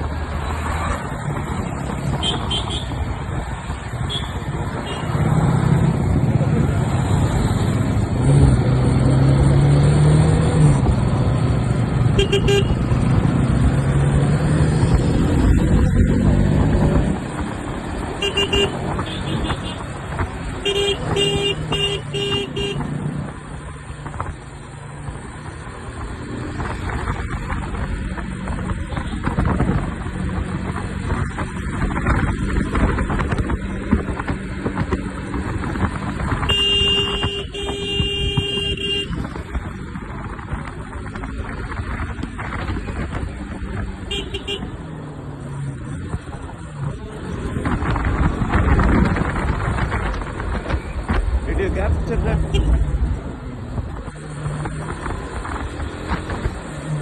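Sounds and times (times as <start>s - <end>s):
motorcycle engine: 0.0s - 57.0s
wind noise: 0.0s - 57.0s
rapid horn toots: 18.2s - 19.8s, 20.6s - 22.9s, 36.4s - 39.2s, 44.1s - 44.8s, 52.4s - 52.8s.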